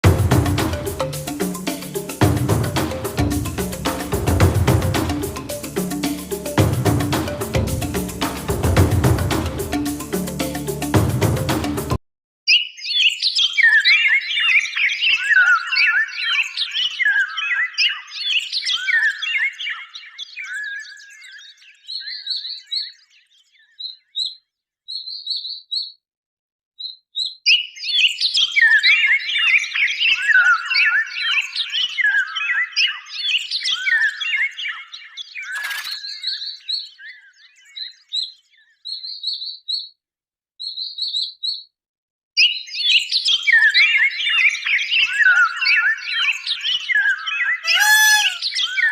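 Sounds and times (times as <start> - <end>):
small birds twittering and chirping: 12.5 - 26.0, 26.8 - 40.0, 40.6 - 41.8, 42.4 - 48.9.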